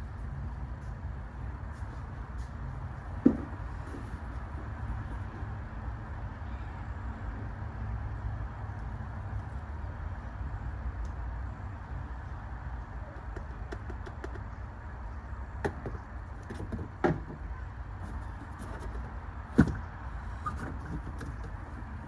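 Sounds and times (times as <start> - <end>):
sharp knocks and clunks: 3.2 - 4.0, 15.6 - 21.6.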